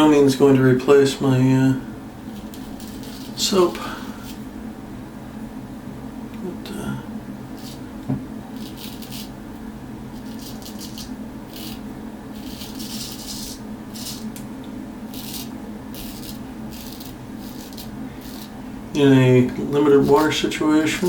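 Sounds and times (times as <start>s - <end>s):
steady low hum: 0.0s - 21.0s
razor scraping stubble: 2.3s - 4.5s, 7.6s - 9.4s, 10.1s - 14.5s, 15.1s - 18.6s, 19.6s - 21.0s.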